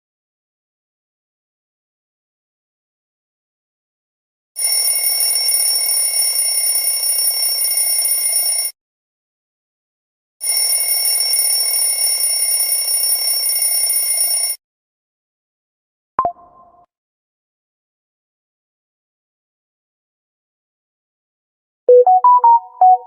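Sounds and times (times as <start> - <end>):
alarm clock bell ringing: 4.6 - 8.8, 10.4 - 14.6.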